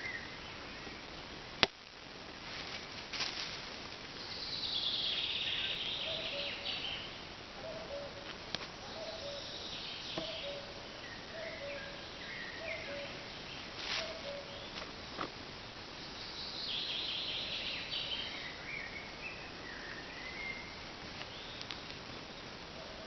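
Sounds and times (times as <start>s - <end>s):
outdoor background noise: 0.0s - 23.0s
high bird twittering: 4.2s - 8.2s, 8.8s - 14.8s.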